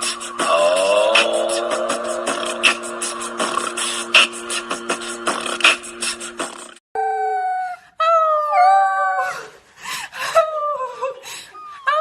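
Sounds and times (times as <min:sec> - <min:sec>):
music with steady beat: 0:00.0 - 0:06.8.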